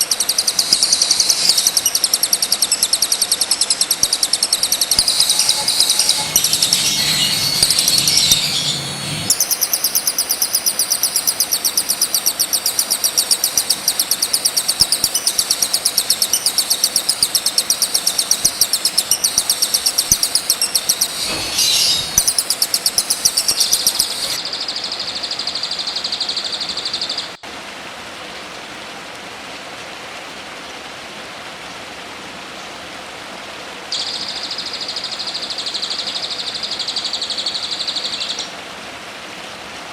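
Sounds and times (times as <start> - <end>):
bird chittering: 0.0 - 24.4
steady high buzz: 0.0 - 24.4.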